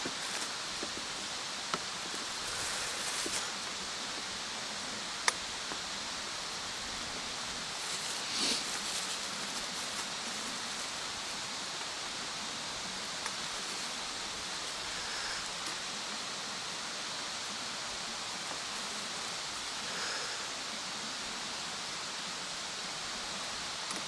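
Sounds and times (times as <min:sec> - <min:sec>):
bonfire hissing and crackling: 0:00.0 - 0:24.0.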